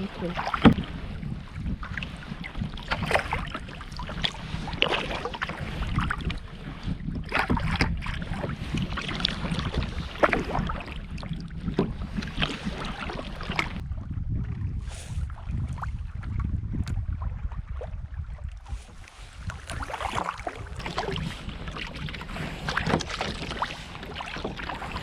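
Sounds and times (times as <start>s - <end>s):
kayak paddle splashing in water: 0.0s - 13.8s, 15.0s - 25.0s
wind noise on microphone: 0.0s - 25.0s.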